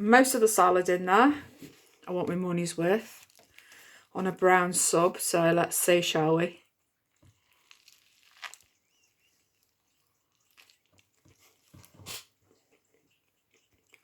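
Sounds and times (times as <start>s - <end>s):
chewing bread roll: 3.0s - 4.1s, 6.6s - 14.0s.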